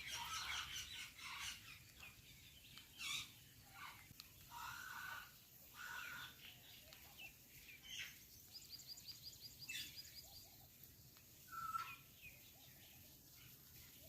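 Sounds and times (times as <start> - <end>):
parrot chirping and calling: 0.0 - 1.8.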